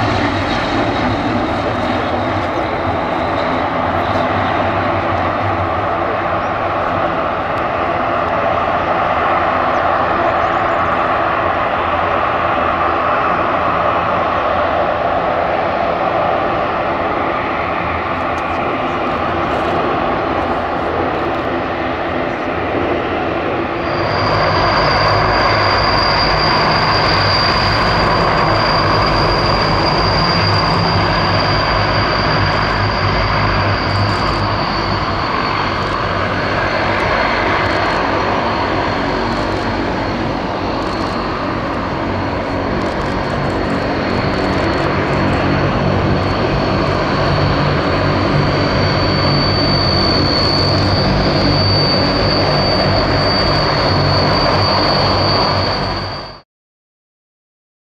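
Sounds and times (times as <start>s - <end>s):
high steady engine whine: 0.0s - 56.4s
turboprop propeller drone: 0.0s - 56.4s.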